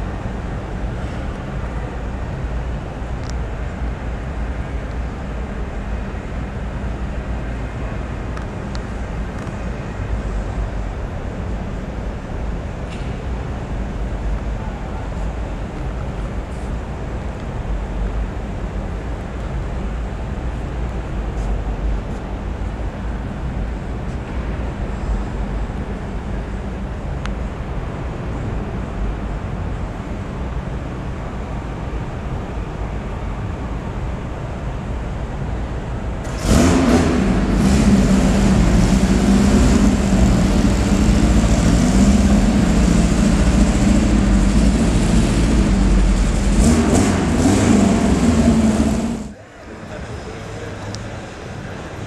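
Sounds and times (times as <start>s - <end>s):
low hall rumble: 0.0s - 52.0s
car engine starting and running: 36.2s - 49.9s.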